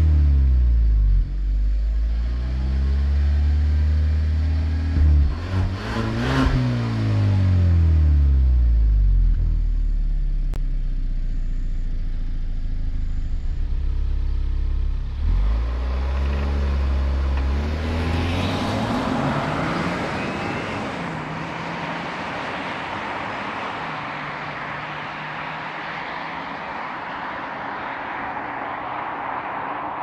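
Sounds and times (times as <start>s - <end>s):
car accelerating hard: 2.0s - 8.6s, 14.5s - 30.0s.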